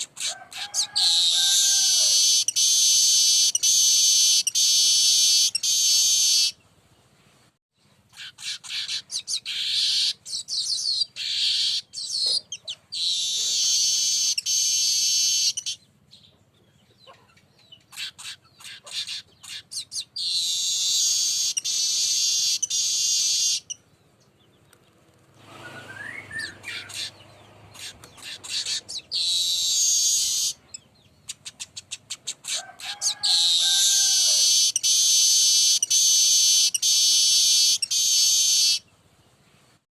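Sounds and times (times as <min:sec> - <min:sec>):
high buzzing birdsong: 0:01.1 - 0:06.7, 0:07.8 - 0:32.3, 0:33.4 - 0:39.4
low whistled notes: 0:25.5 - 0:26.6.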